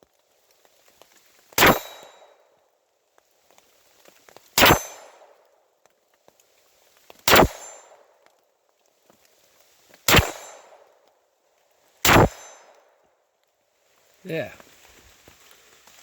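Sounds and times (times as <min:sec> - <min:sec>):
pistol shots: 0:01.6 - 0:02.2, 0:04.6 - 0:05.3, 0:07.3 - 0:08.0, 0:10.1 - 0:10.9, 0:12.0 - 0:12.7.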